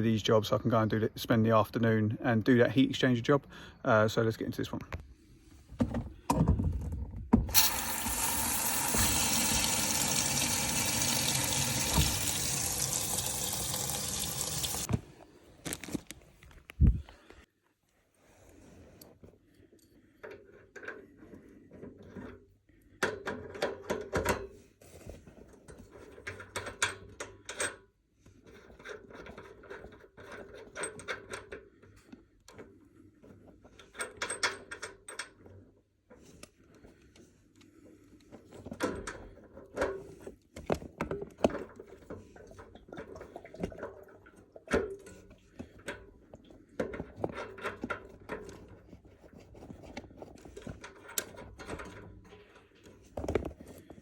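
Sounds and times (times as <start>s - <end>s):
tools clicking and knocking on fittings: 19.8s - 22.4s, 23.0s - 24.5s, 25.7s - 27.9s, 28.5s - 32.7s, 33.7s - 37.7s, 44.7s - 54.0s.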